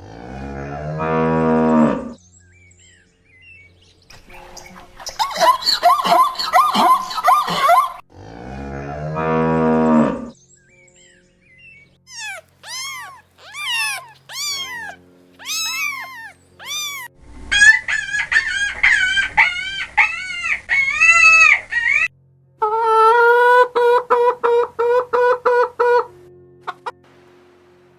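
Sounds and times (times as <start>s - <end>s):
cow mooing: 0.0s - 2.2s, 12.1s - 17.1s
high-pitched animal calls: 12.1s - 22.1s.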